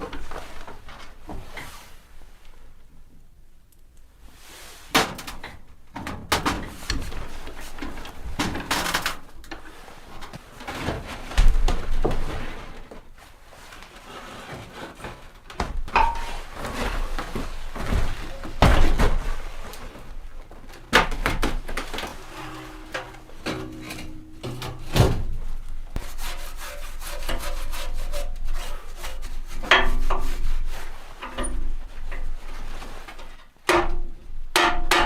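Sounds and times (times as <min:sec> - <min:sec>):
wooden knocks and thuds: 0:17.8 - 0:19.4
scraping: 0:21.5 - 0:33.4.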